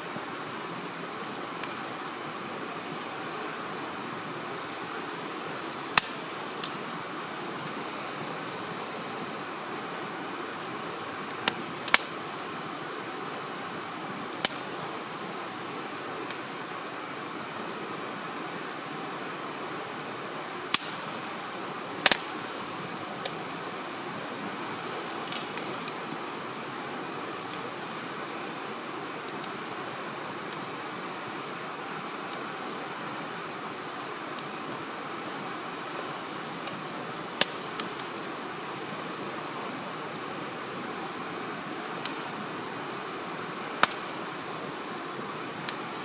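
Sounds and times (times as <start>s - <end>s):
campfire crackling: 0.0s - 46.0s
steady hiss: 0.0s - 46.0s
sharp pops from burning logs: 4.6s - 7.4s, 10.9s - 13.2s, 14.2s - 14.7s, 20.6s - 24.0s, 24.7s - 26.6s, 34.4s - 38.9s, 41.8s - 42.3s, 43.1s - 45.0s.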